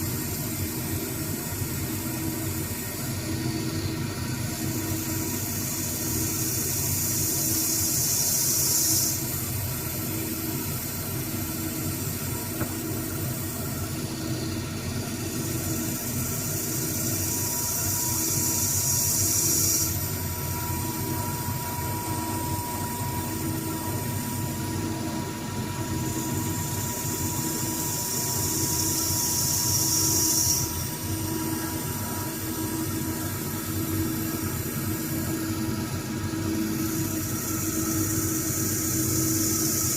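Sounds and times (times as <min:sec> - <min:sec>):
high hiss of cutting tool: 0:00.0 - 0:39.9
lathe humming: 0:12.1 - 0:39.9.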